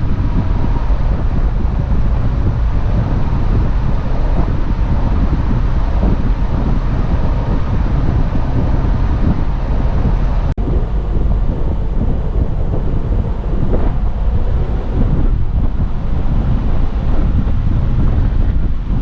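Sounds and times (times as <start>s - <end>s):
off-road vehicle rumble: 0.0s - 19.0s
wind buffeting microphone: 0.0s - 19.0s.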